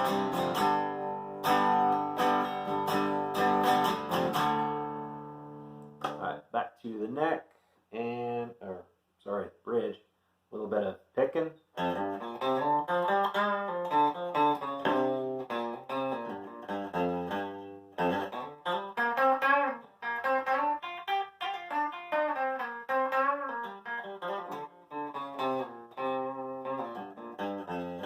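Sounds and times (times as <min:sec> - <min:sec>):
clean electric guitar picked notes: 0:11.8 - 0:28.0.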